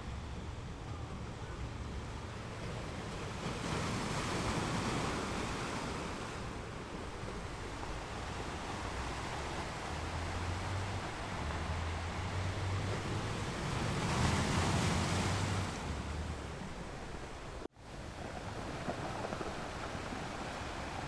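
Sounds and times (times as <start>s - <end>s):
ocean waves washing ashore: 0.0s - 21.0s.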